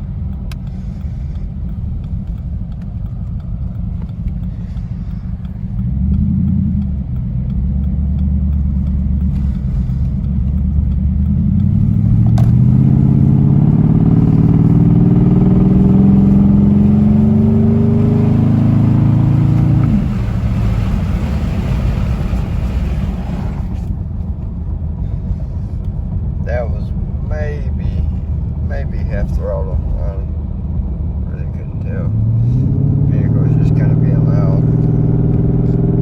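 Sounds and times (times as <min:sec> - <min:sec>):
car exhaust accelerating: 0:00.0 - 0:36.0.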